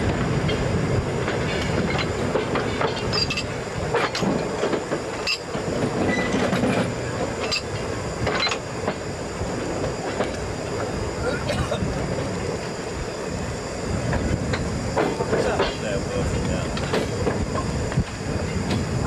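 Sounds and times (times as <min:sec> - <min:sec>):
wheels clanking over rail joints: 0:00.0 - 0:10.9, 0:14.0 - 0:19.0
train rumbling: 0:00.0 - 0:19.0
wheel squeal: 0:05.2 - 0:06.6.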